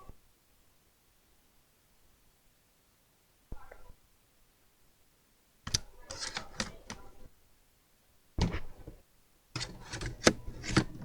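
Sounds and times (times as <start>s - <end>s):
hard parts clicking and clattering: 9.6s - 11.0s.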